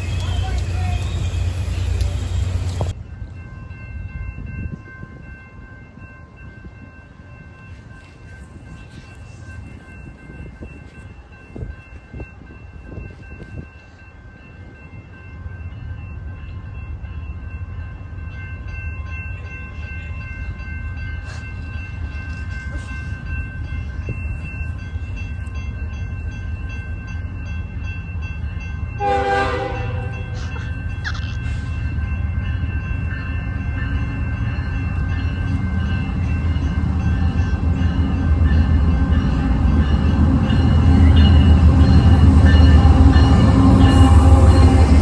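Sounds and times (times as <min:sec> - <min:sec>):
train rumble: 0:00.0 - 0:45.0
train horn blast: 0:29.0 - 0:30.4.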